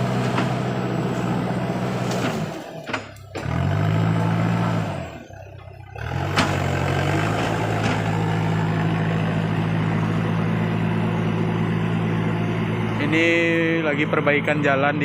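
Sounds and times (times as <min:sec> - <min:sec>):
tractor diesel engine revving: 0:00.0 - 0:15.0.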